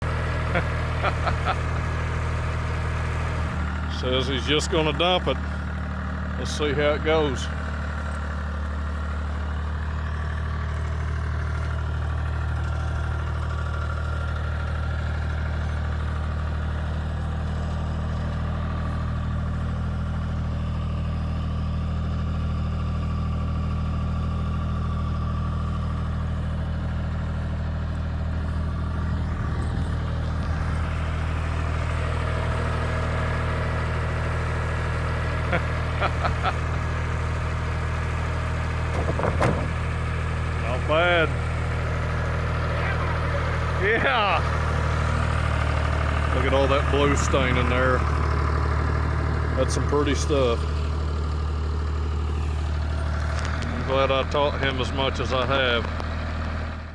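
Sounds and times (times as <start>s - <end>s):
engine idling: 0.0s - 56.9s
loose clatter: 38.8s - 40.0s.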